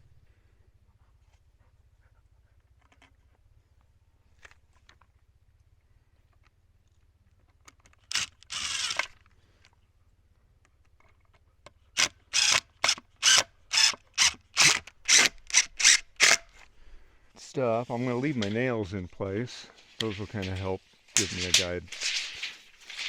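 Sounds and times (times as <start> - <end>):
rasping scrapes: 19.7 - 23.0.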